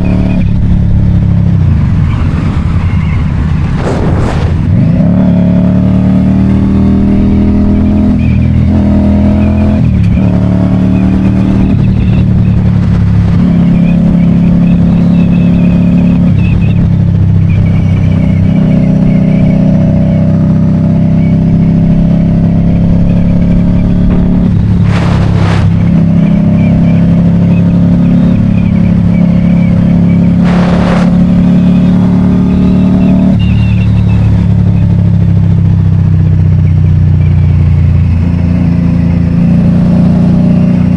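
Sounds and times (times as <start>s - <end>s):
motorcycle engine running: 0.0s - 40.9s
brief rushing noise: 2.2s - 5.0s, 24.5s - 26.3s, 30.4s - 31.5s.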